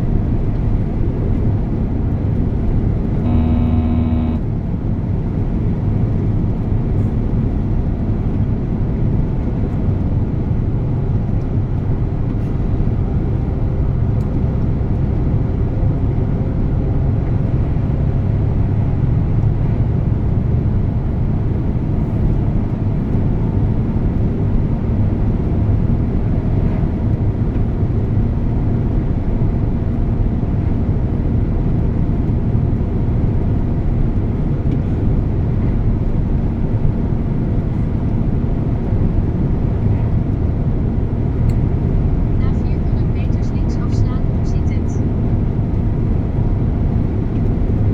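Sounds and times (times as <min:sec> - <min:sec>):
truck diesel engine droning: 0:00.0 - 0:04.8, 0:35.0 - 0:47.9
road noise: 0:00.0 - 0:47.9.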